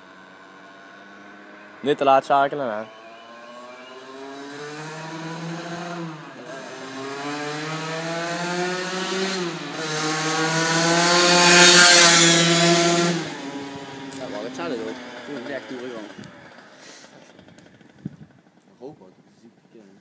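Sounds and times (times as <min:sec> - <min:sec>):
two-stroke motorbike accelerating: 0:00.0 - 0:20.0.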